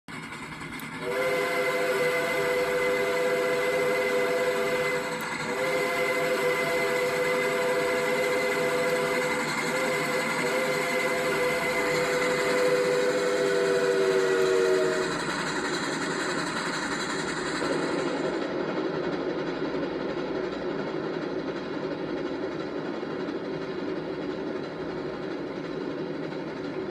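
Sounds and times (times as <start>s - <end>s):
train running noise: 0.1s - 26.9s
steam locomotive chime whistle: 0.2s - 18.5s.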